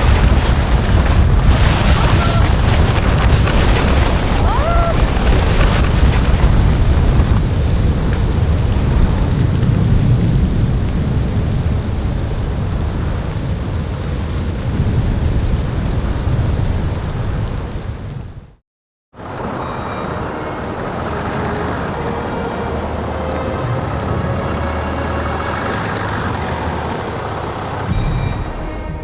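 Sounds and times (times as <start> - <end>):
strong wind rushing: 0.0 - 18.6.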